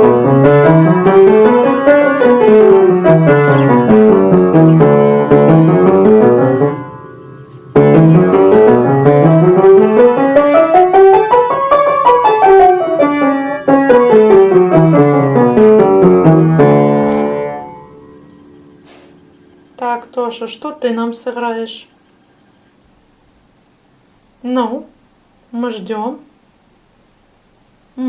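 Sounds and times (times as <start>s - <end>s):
piano scale runs: 0.0s - 19.8s.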